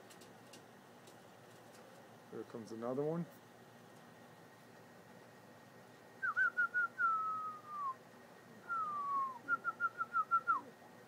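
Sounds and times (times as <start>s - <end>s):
person whistling: 6.2s - 8.0s, 8.7s - 10.7s.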